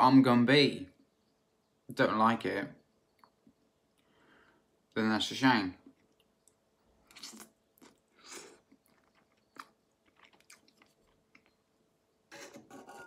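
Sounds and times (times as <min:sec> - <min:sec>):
wet chewing mouth clicks: 0:05.9 - 0:11.6.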